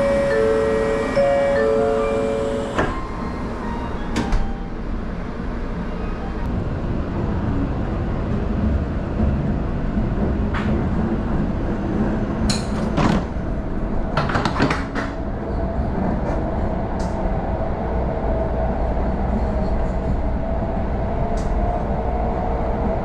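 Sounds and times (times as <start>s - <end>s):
train running gear rumble: 0.0s - 23.0s.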